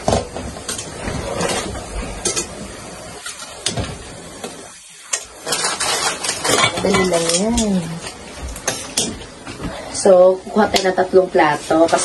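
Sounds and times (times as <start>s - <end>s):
steady background hiss: 0.0s - 12.0s
metal tongs clinking on pot: 5.1s - 7.7s.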